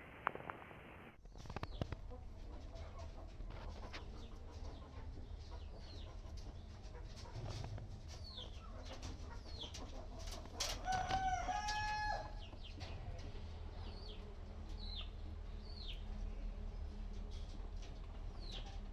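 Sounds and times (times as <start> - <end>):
small birds chirping: 1.2 - 11.3, 12.1 - 18.9
rooster crowing: 10.8 - 12.4.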